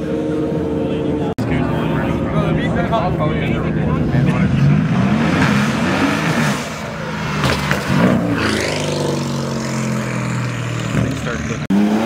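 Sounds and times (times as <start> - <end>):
sports car engine revving past: 3.9 - 12.0.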